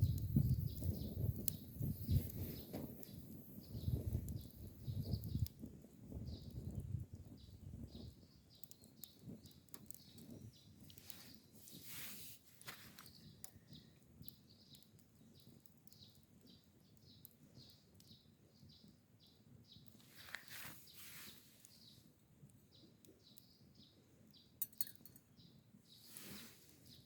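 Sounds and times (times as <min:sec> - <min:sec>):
faint bird chirping: 0:06.1 - 0:11.9, 0:12.6 - 0:22.1, 0:22.7 - 0:27.0
sharp clinks: 0:24.6 - 0:25.2.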